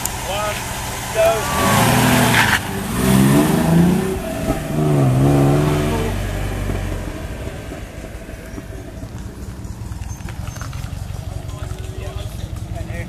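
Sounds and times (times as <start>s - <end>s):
rally car engine accelerating: 0.0s - 13.0s.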